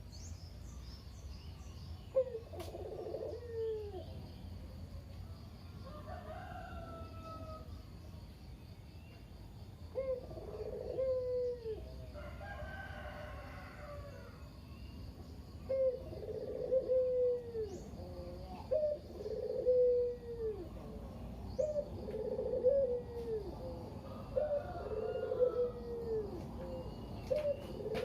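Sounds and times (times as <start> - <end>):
dove cooing: 2.1 - 4.2, 9.9 - 12.0, 15.6 - 28.0
rooster crowing: 5.8 - 7.7, 12.1 - 14.4, 24.0 - 26.3.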